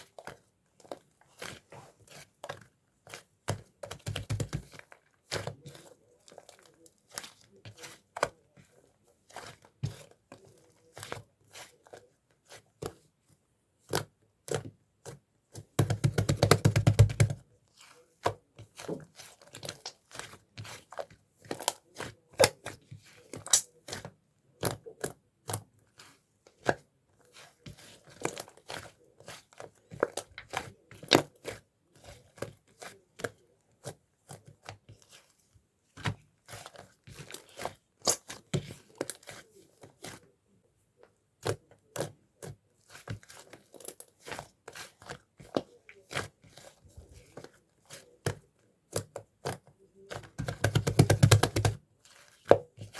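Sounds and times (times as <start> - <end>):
slime rapid pops and squelch: 23.4 - 23.7, 50.3 - 51.8.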